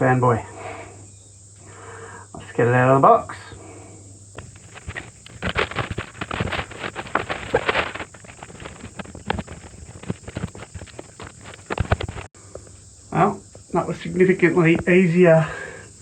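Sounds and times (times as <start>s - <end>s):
cardboard rustling and scraping: 4.4s - 12.3s
knocks and thumps: 4.4s - 12.7s.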